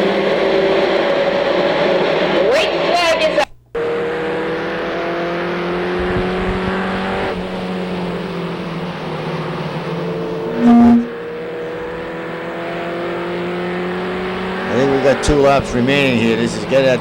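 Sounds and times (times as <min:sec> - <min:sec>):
racing truck engines: 0:03.8 - 0:17.0
brief loud tone: 0:10.5 - 0:11.2.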